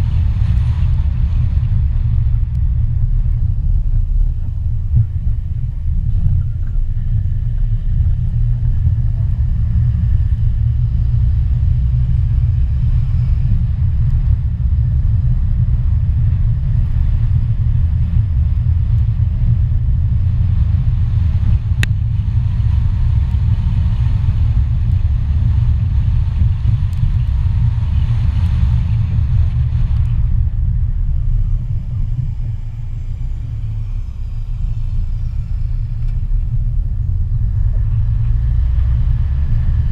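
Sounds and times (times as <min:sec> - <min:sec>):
road and wind noise: 0:00.0 - 0:39.9
faint high drone: 0:30.4 - 0:38.3.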